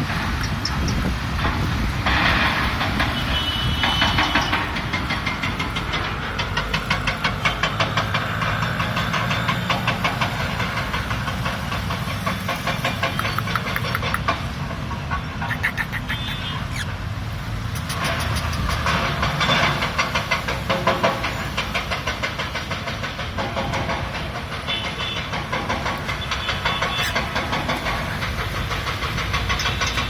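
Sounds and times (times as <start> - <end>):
parrot chattering clicks: 12.4 - 14.4, 15.4 - 17.0, 17.6 - 19.5, 26.4 - 28.2
parrot hissing: 15.4 - 16.9.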